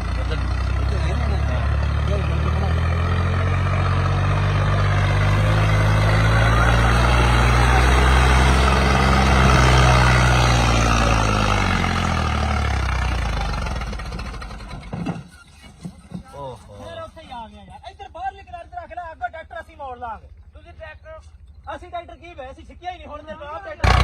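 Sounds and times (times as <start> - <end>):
tractor diesel engine running: 0.0 - 22.8.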